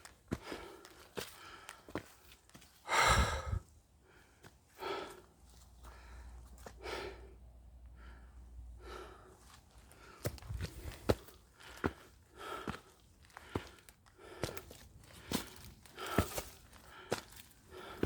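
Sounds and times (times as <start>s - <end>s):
person breathing heavily: 0.3s - 2.0s, 2.8s - 18.0s.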